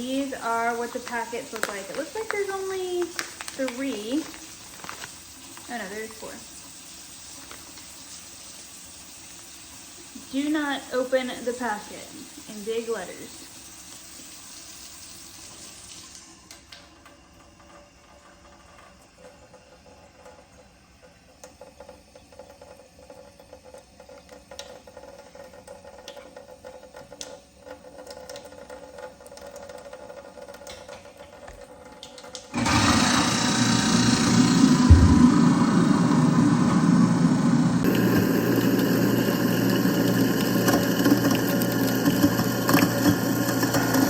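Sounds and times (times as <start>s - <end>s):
garbage disposal grinding: 0.0s - 8.0s, 32.5s - 44.0s
tap water trickling into drain: 0.1s - 10.4s, 13.5s - 32.5s, 37.8s - 43.8s.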